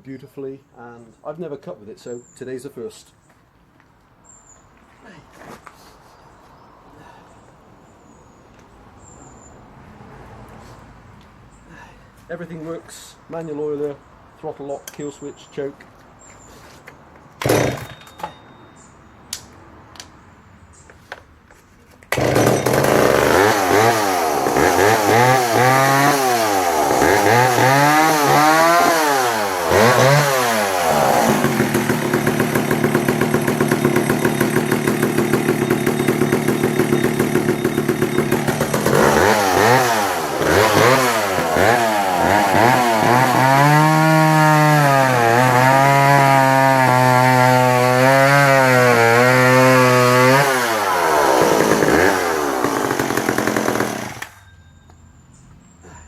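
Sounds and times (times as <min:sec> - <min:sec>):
chainsaw revving: 0:17.4 - 0:18.0, 0:22.1 - 0:54.4.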